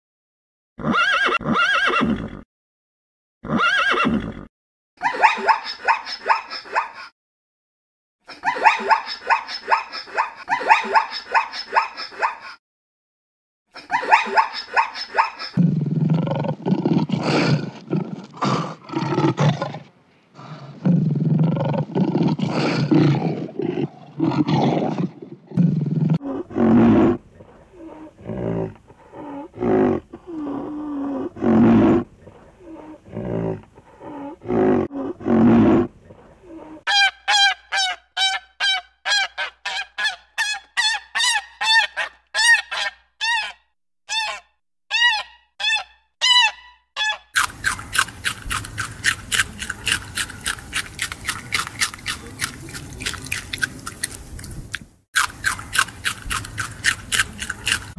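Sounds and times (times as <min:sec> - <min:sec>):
lion roaring grunts: 0:15.6 - 0:36.8
rabbit chewing: 0:47.4 - 0:57.9.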